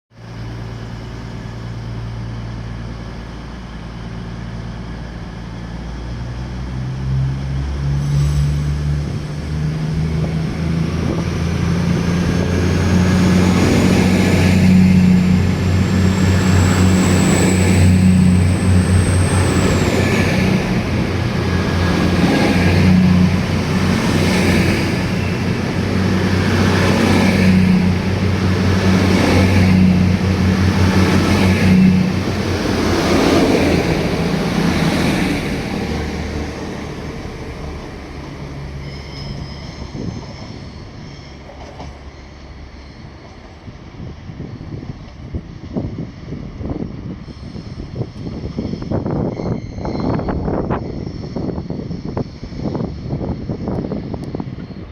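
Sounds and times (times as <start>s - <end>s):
diesel train engines throttling up: 0.2s - 54.9s
thin high whine: 11.1s - 54.9s.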